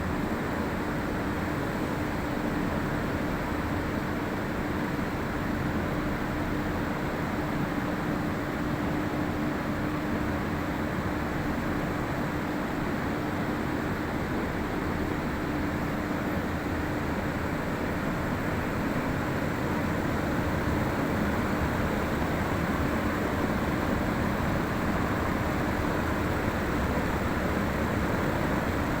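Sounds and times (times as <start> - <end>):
exhaust fan running: 12.0 - 29.0.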